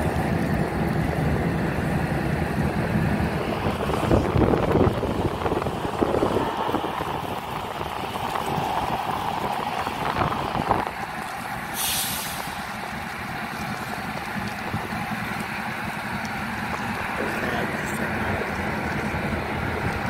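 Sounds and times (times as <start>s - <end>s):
wind on microphone: 0.0s - 11.7s, 13.6s - 20.0s
freight train rolling past: 0.0s - 20.0s
brief hiss: 11.7s - 12.6s.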